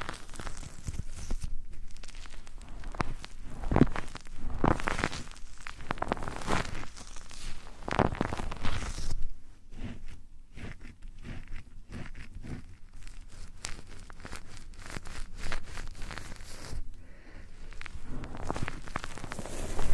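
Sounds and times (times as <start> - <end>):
crinkly rustle on microphone: 0.0 - 19.9
soft clicks and light scrapes: 17.6 - 19.9.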